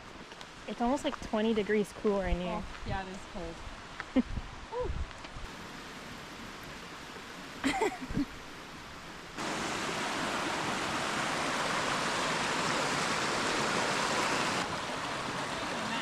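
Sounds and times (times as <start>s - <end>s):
creek water flowing: 5.5s - 16.0s.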